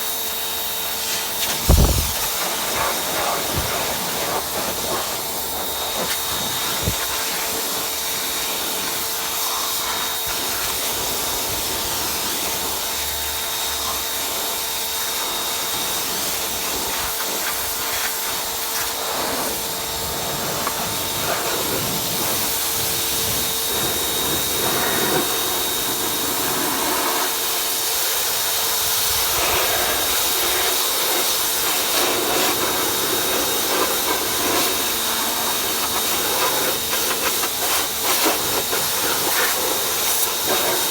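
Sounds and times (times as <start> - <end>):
pressure washer spray hissing: 1.0 - 7.8, 29.3 - 40.9.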